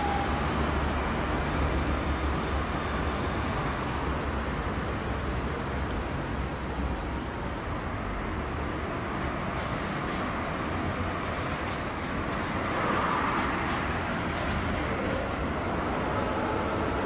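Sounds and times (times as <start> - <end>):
road traffic: 0.0 - 17.0
tram rumbling along street: 0.0 - 17.0.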